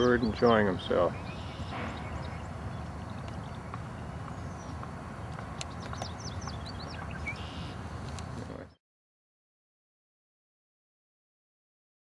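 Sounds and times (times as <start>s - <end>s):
low outdoor rumble: 0.0s - 8.8s
high bird chirps: 1.0s - 4.8s, 5.6s - 7.8s.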